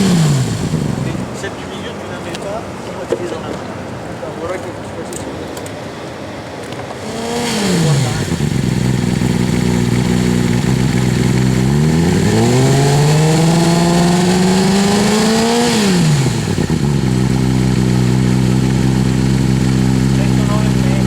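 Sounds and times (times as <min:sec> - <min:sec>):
motorcycle engine idling and revving: 0:00.0 - 0:01.5, 0:05.6 - 0:21.0.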